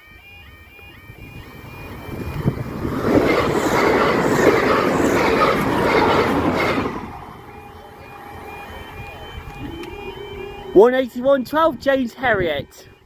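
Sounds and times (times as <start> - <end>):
rail clicks: 0.8 - 10.2
train passing at speed: 1.0 - 12.2.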